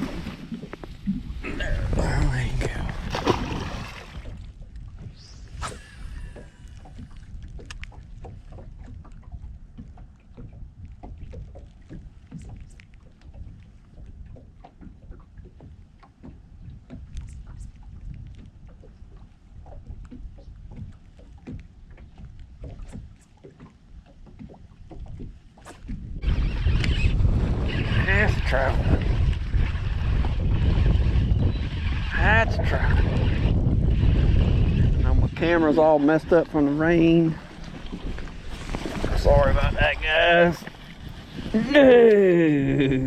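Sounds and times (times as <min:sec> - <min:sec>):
wind rumbling on microphone: 0:00.0 - 0:23.2, 0:24.0 - 0:43.0.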